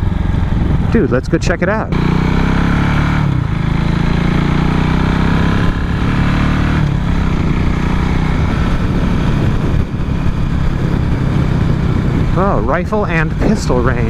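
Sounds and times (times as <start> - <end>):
wind noise on microphone: 0.0 - 1.2, 6.8 - 14.0
motorcycle engine running: 0.0 - 14.0.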